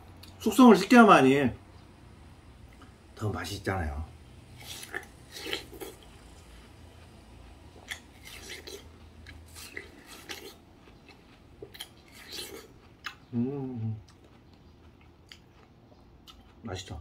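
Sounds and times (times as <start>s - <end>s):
chewing watermelon: 4.6s - 17.0s
person humming: 13.3s - 14.0s.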